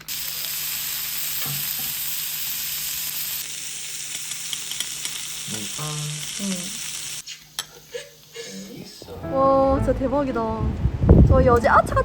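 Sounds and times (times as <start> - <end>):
meat sizzling in a hot pan: 0.0 - 8.5.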